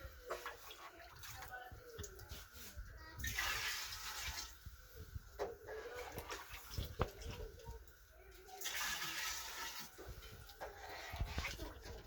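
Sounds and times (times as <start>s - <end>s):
water pouring into clay pot: 3.2s - 12.0s.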